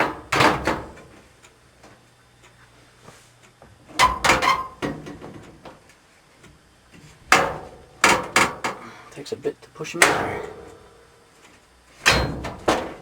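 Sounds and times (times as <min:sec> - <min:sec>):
sheet-metal knocks and clatter: 0:00.0 - 0:01.1, 0:04.0 - 0:05.5, 0:07.3 - 0:08.8, 0:12.0 - 0:13.0.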